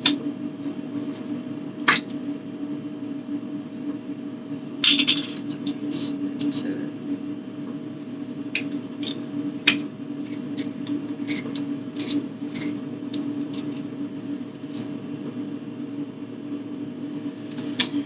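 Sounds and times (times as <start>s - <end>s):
steady low hum: 0.0s - 18.0s
containers knocking and clicking: 8.6s - 13.8s.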